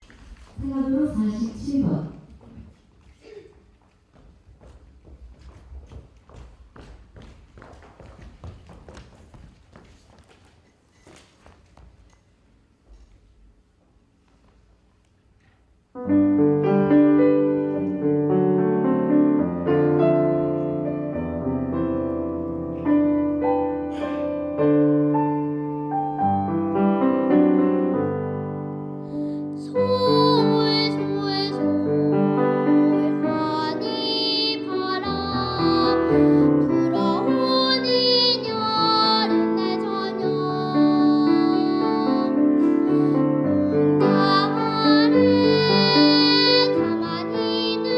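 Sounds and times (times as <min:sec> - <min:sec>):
piano accompaniment: 0:16.0 - 0:47.9
child singing: 0:29.6 - 0:47.9.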